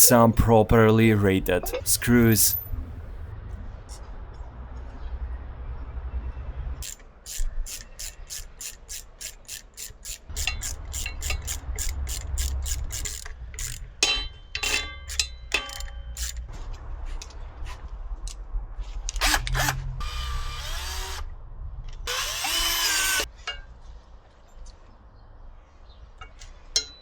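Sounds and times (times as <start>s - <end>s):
ratchet wrench clicking: 6.8s - 13.9s, 14.6s - 16.5s, 22.1s - 23.3s.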